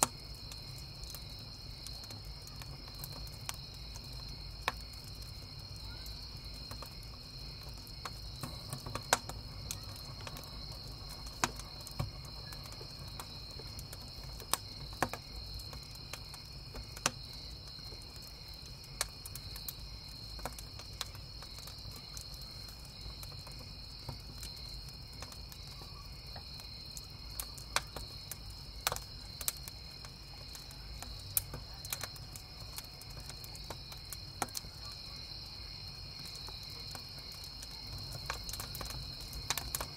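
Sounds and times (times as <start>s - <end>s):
burning firewood popping: 0.0s - 39.9s
campfire crackling: 0.0s - 39.9s
crickets chirping: 0.0s - 39.9s.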